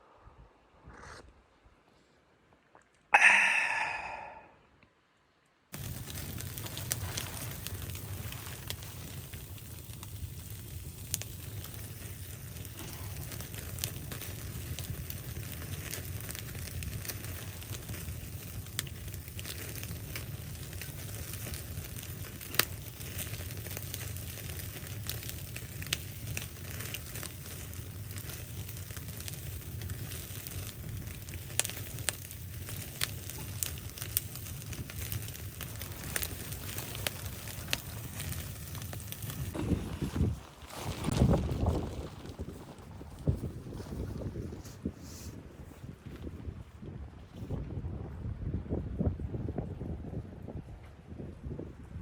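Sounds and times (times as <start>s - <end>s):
rushing noise: 3.2s - 4.6s
wood fire crackling: 5.7s - 46.6s.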